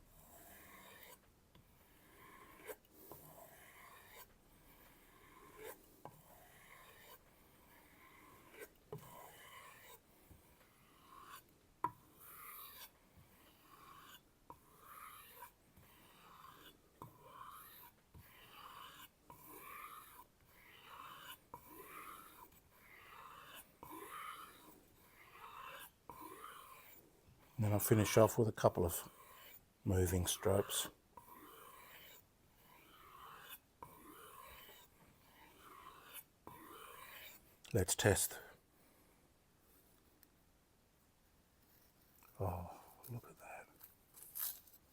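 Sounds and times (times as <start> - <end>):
knife rubbing on leather strop: 44.1 - 44.8.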